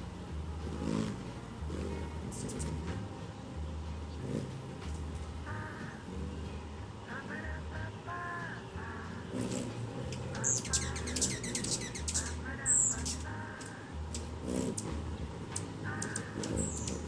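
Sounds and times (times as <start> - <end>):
harsh bird calls: 8.2 - 17.0
high-pitched bird chirps: 10.1 - 14.9, 15.6 - 17.0.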